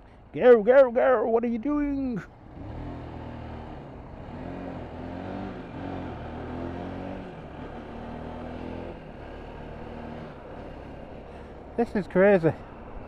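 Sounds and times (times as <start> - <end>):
motorcycle engine revving: 2.4 - 12.0.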